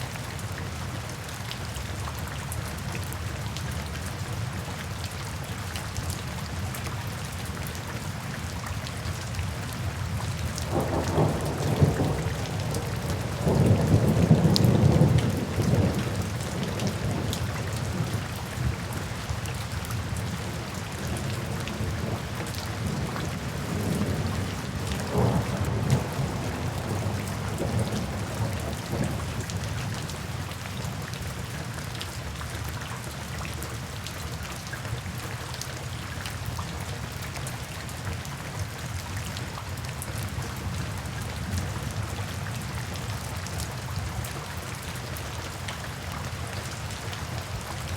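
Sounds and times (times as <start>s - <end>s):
steady rain: 0.0s - 47.9s
thunder rumbling: 10.6s - 18.2s, 21.1s - 29.4s.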